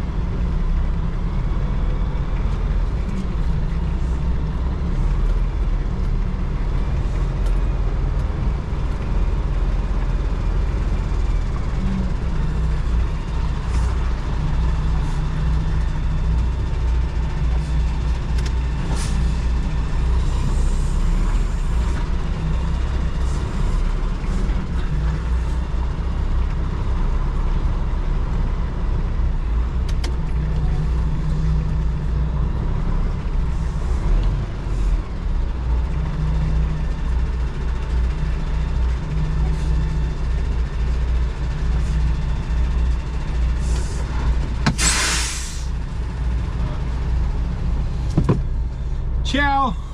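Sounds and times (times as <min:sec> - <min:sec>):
diesel engine running: 0:00.0 - 0:49.9
short hiss: 0:44.8 - 0:45.7.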